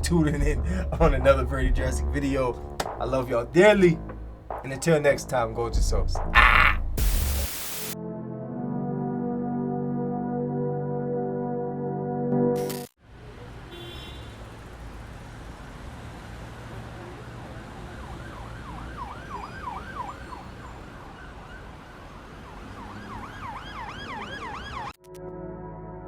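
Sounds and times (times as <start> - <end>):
siren yelping: 17.8 - 25.0.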